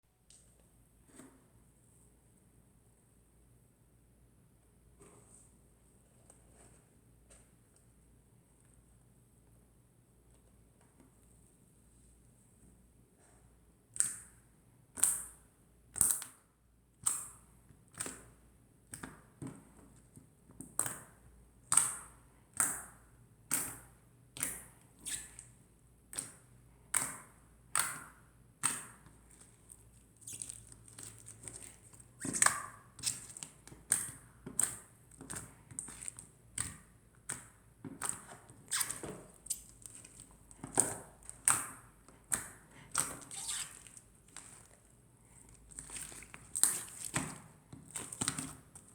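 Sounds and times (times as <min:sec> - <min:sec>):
slime squeezed wet pops: 0:27.8 - 0:48.9.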